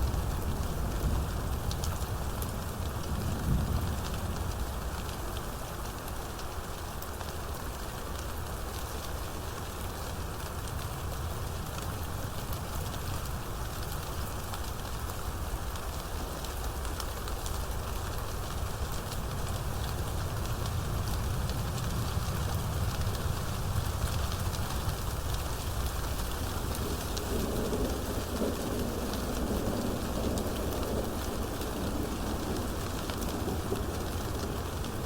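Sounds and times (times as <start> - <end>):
steady rain falling: 0.0 - 35.0
low thunder rumble: 20.5 - 35.0.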